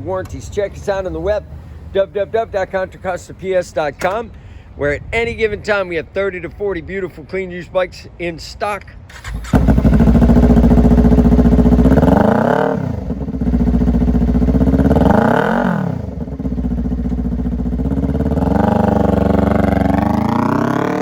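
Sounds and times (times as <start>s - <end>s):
motorcycle engine revving: 9.1s - 21.0s.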